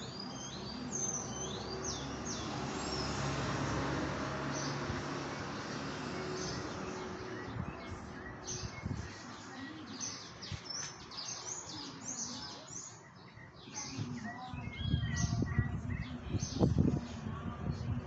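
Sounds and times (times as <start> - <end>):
small birds chirping: 0.0 - 18.0
low rumble on microphone: 14.5 - 18.0.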